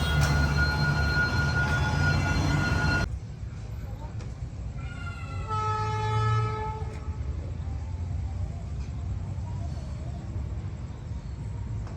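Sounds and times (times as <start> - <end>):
locomotive horn blast: 0.0 - 3.0
train rumbling past: 0.0 - 4.8.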